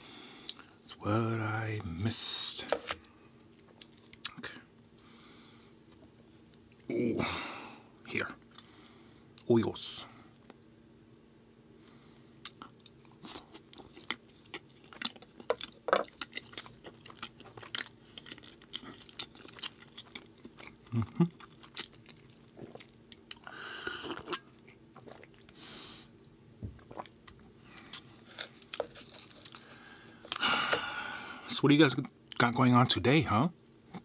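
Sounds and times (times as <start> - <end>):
crunchy chewing: 12.4 - 25.6, 27.7 - 30.4.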